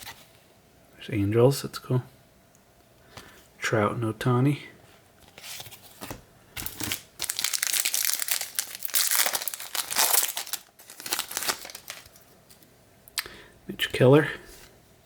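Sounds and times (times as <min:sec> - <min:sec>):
foil wrapper crinkling: 0:06.6 - 0:12.6.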